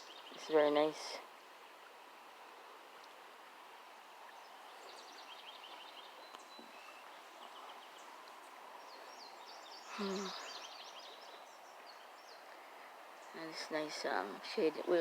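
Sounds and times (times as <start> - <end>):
faint steady hiss: 0.0 - 15.0
small birds chirping: 4.3 - 15.0.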